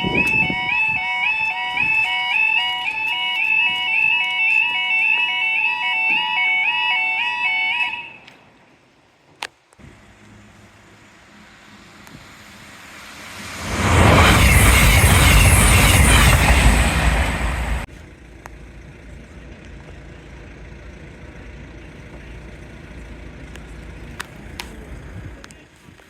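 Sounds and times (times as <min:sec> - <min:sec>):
train passing at speed: 0:09.8 - 0:17.9.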